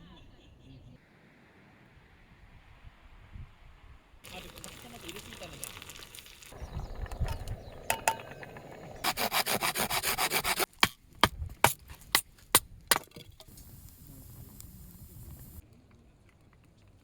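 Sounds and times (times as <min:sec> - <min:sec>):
rasping strokes on wood: 0:07.8 - 0:10.7.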